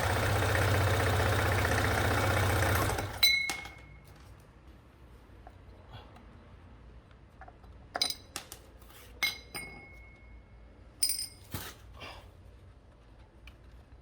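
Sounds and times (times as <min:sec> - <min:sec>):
metal clinks and taps: 0:07.4 - 0:08.4, 0:09.2 - 0:10.4, 0:11.0 - 0:11.5.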